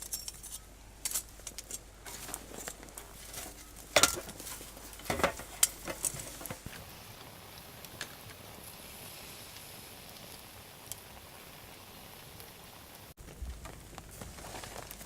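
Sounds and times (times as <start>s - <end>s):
metal cookware clinking: 0.0s - 1.8s, 3.3s - 6.6s.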